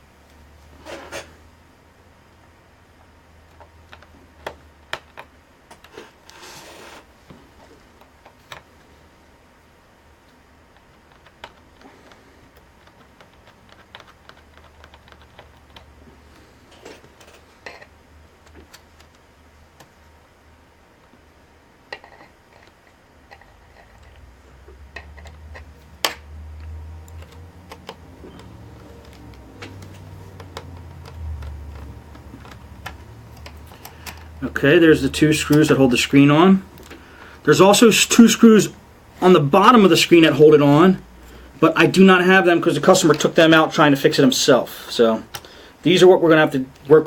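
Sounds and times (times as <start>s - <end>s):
plastic laptop parts clicking: 3.4s - 6.0s, 8.0s - 8.7s, 10.7s - 16.0s, 16.9s - 19.2s, 21.9s - 34.4s.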